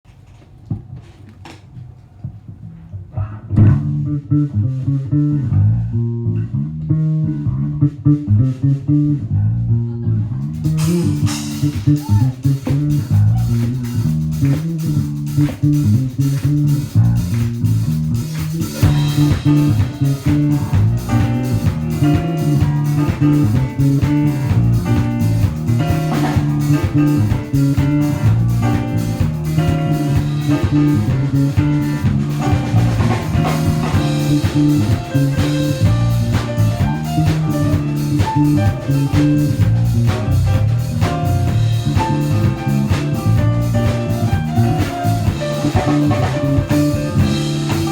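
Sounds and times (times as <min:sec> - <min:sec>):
bass and guitar riff: 0:03.2 - 0:47.9
drum kit with cymbals: 0:10.4 - 0:47.9
rock band playing live: 0:10.6 - 0:47.9.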